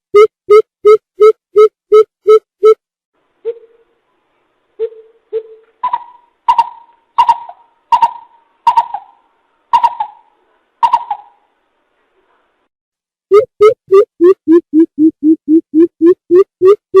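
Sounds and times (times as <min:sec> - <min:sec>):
coucal hooting: 0:09.8 - 0:11.4.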